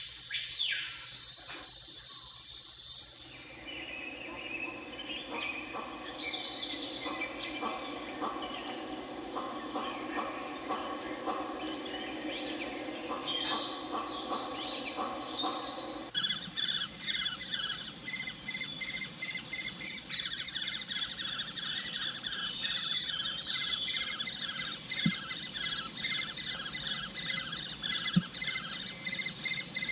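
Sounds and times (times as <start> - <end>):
small birds chirping: 0.2 - 29.9
low murmur: 3.6 - 16.1.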